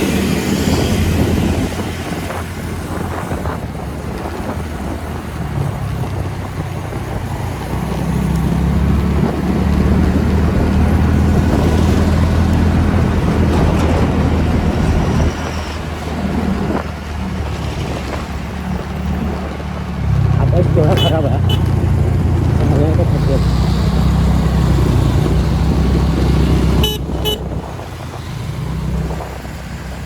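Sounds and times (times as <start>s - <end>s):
scooter engine droning: 0.0s - 30.0s
wind rush over microphone: 0.0s - 30.0s.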